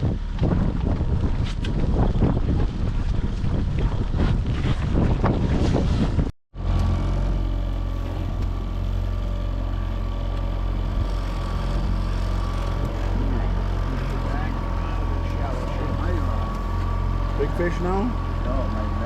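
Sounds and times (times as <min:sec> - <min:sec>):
wind buffeting microphone: 0:00.0 - 0:06.3
boat motor running: 0:00.0 - 0:19.0.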